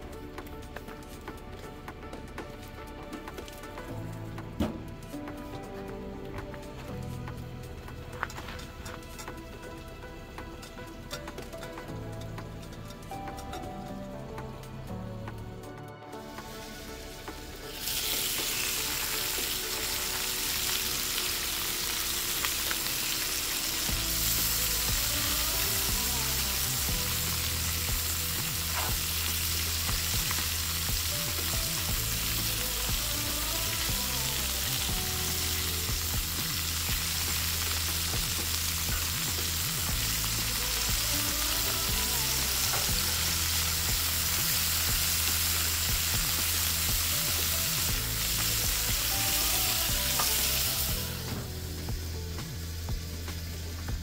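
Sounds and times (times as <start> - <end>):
food sizzling on griddle: 16.1 - 54.0.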